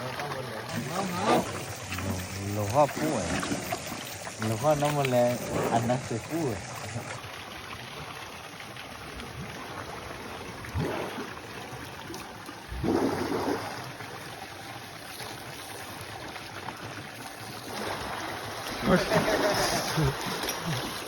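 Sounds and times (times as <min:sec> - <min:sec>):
rushing water: 0:00.0 - 0:21.0
water splashes: 0:00.0 - 0:21.0.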